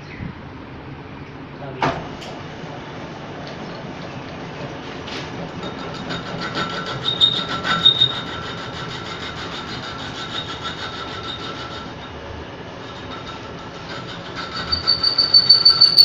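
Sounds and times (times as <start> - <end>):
metal lathe cutting: 5.3 - 16.0
high-pitched tool squeal: 5.6 - 12.2, 12.9 - 16.0.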